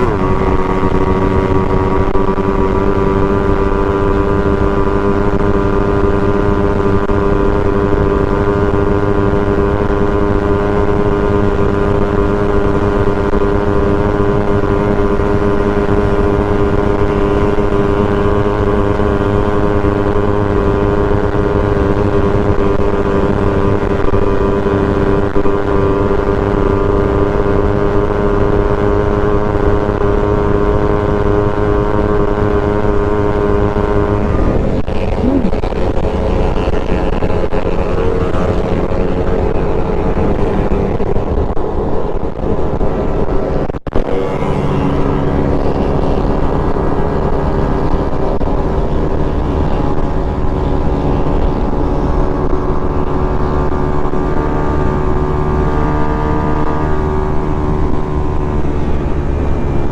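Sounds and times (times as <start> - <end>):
motorcycle engine at high revs: 0.0 - 59.9
wind rush: 33.4 - 55.7.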